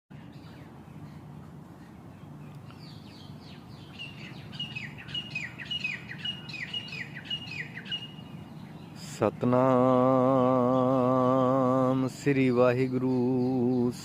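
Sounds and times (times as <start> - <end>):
songbird whistling call: 0.1 - 9.3, 12.8 - 14.0.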